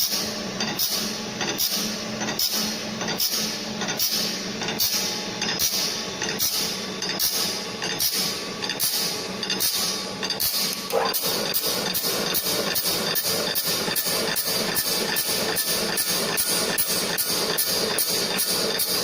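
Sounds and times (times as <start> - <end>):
machine motor humming: 10.7 - 14.2.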